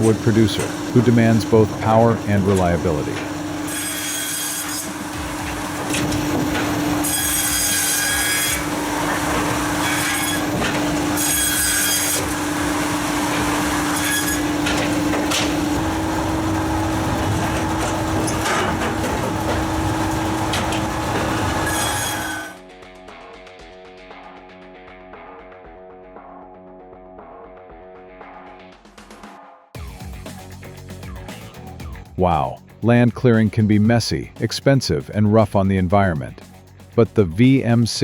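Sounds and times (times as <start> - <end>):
circular saw cutting logs: 0.0 - 22.6
electric motor humming: 0.0 - 22.6.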